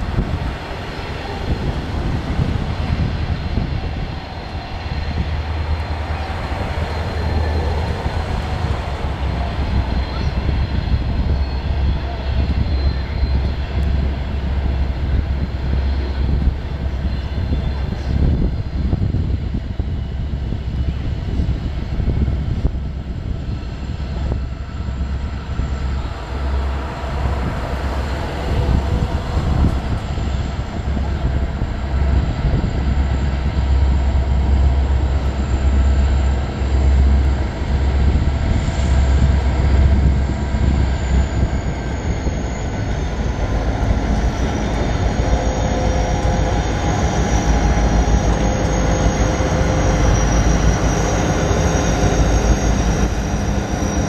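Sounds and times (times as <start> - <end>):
diesel locomotive rumble: 0.0 - 54.0
faint high whine: 23.3 - 54.0.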